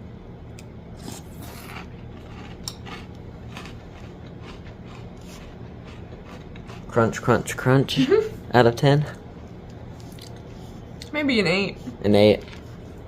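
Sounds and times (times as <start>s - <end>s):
person chewing crunchy cereal: 1.0s - 7.2s.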